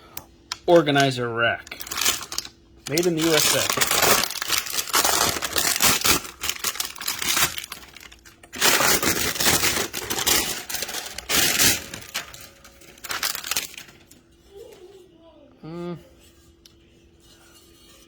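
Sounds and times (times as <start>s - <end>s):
packaging crinkling: 0.6s - 14.2s.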